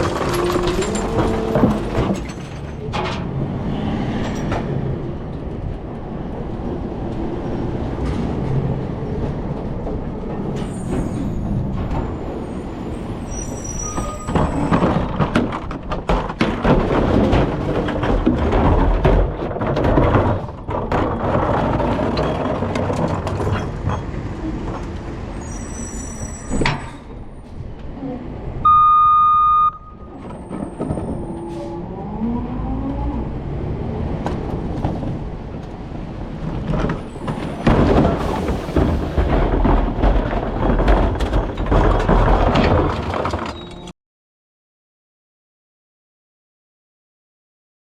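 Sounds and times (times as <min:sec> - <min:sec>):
clanks and rattles: 0:00.0 - 0:06.1, 0:07.9 - 0:25.4, 0:34.2 - 0:43.9
garbage truck engine and machinery: 0:00.0 - 0:44.0
loud steady beep: 0:28.6 - 0:30.1.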